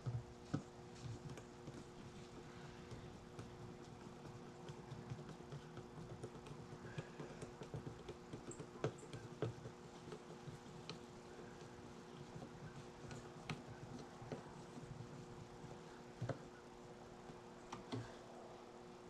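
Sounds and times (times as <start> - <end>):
faint clicks and taps: 0.0 - 18.2
steady low hum: 0.0 - 19.0.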